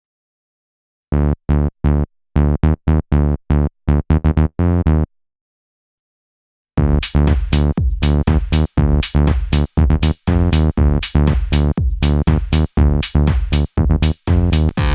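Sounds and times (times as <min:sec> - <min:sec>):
buzzy synth bassline: 0:01.1 - 0:05.1, 0:13.8 - 0:14.9
drum loop: 0:06.8 - 0:14.9.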